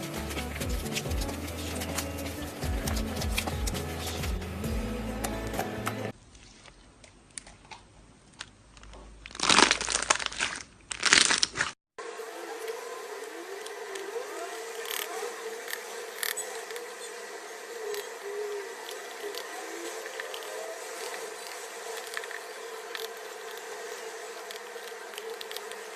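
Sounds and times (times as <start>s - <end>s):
slime crinkling crackles: 6.2s - 11.8s.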